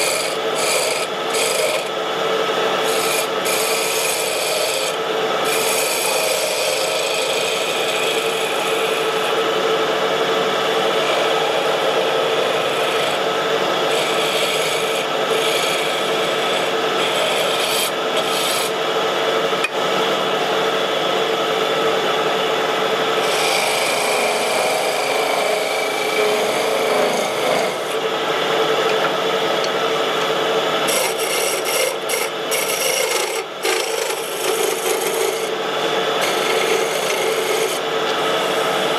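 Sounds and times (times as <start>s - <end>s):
turning tool scraping wood: 0.0s - 9.4s, 10.9s - 18.8s, 23.2s - 28.5s, 30.8s - 38.9s
lathe motor humming: 0.0s - 38.9s.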